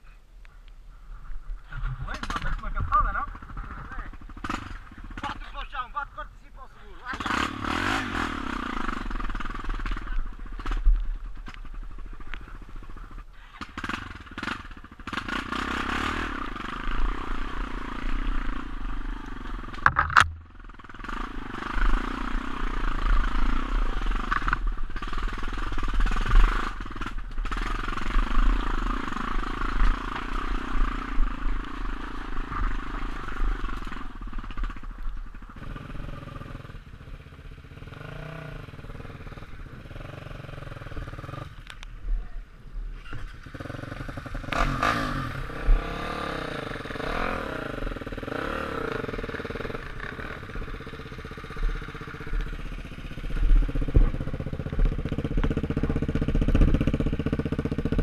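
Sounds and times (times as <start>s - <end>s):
motorcycle engine revving: 1.6s - 41.9s, 42.8s - 58.0s
knocks and clatter from bike: 9.3s - 12.5s, 19.7s - 20.9s, 33.7s - 35.6s, 51.6s - 58.0s.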